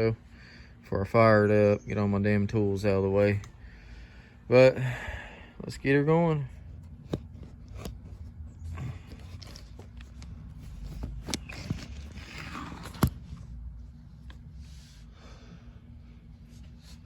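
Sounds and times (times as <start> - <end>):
low steady hum: 0.0 - 17.0
handling clicks and knocks: 8.8 - 13.3.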